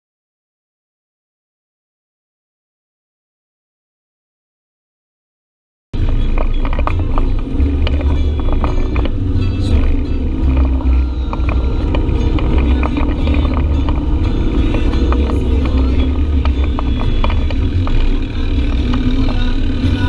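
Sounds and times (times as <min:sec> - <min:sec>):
utility vehicle engine rumbling: 0:06.0 - 0:20.0
vehicle rattling over rough ground: 0:06.0 - 0:20.0.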